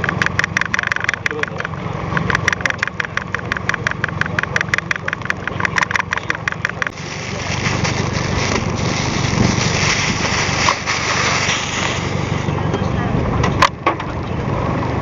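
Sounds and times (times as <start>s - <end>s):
rapid even ticking: 0.0s - 7.0s
boat engine idling: 0.0s - 15.0s
rushing noise: 6.8s - 12.7s.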